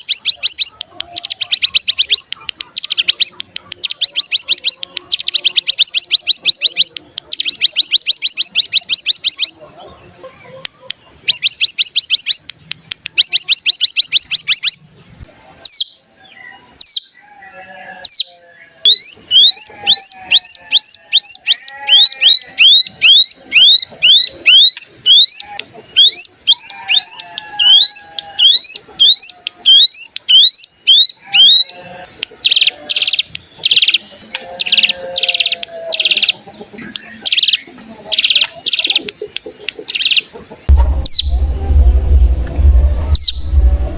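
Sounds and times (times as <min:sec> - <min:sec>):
bird buzzing trill: 0:19.0 - 0:36.4.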